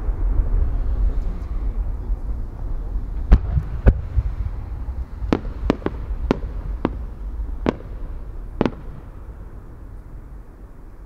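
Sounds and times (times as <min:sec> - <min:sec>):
steady low rumble: 0:00.0 - 0:11.0
fireworks bangs: 0:03.1 - 0:10.2.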